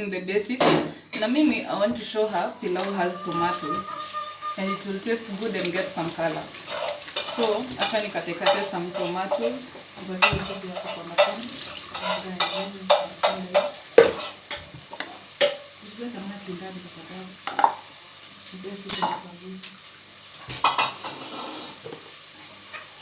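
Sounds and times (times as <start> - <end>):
low sizzle: 0.0 - 23.0
kitchen utensils knocking: 2.6 - 15.6, 17.5 - 17.8, 18.9 - 19.3
ringing metal clink: 18.9 - 19.3.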